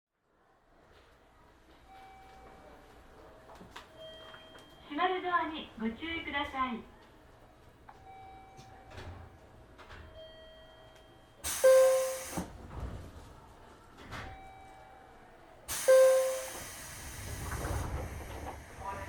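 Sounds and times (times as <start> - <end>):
pneumatic door air hiss: 11.4 - 12.6, 15.7 - 18.8.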